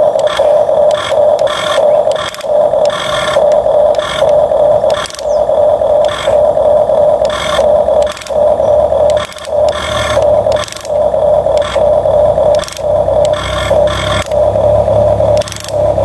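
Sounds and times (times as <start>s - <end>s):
toy electric motor whining: 0.0s - 16.0s.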